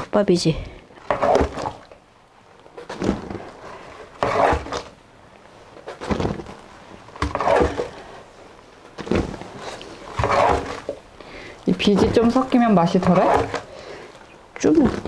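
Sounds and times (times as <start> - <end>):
mash sloshing and splashing: 0.8 - 2.1, 2.8 - 5.0, 5.8 - 8.4, 9.0 - 15.0.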